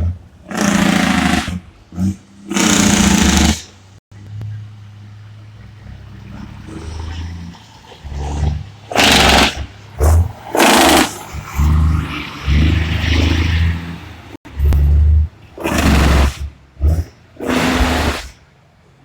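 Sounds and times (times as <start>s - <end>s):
truck engines revving: 0.0s - 19.0s
loud hissing blasts: 0.5s - 1.7s, 2.4s - 3.9s, 8.9s - 12.0s, 15.5s - 18.5s.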